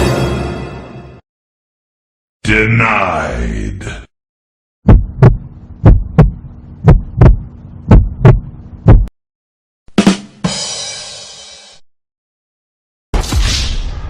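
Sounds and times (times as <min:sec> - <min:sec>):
heartbeat thumps: 0:04.8 - 0:09.1
steady low hum: 0:04.9 - 0:09.1.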